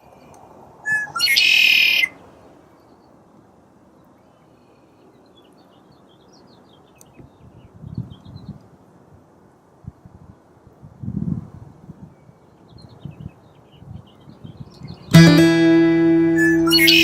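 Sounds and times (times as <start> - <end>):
bird chirping: 14.9 - 17.0
loud high bird call: 15.2 - 17.0.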